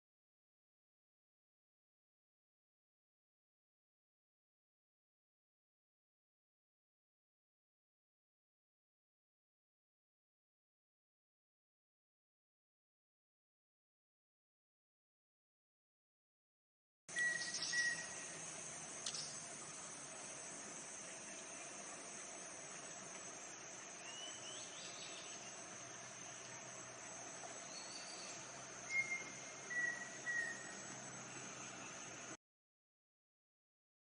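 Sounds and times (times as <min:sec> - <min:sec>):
bird whistling calls: 0:17.1 - 0:18.2, 0:24.0 - 0:25.3, 0:27.7 - 0:30.8
high-pitched insect drone: 0:17.1 - 0:32.4.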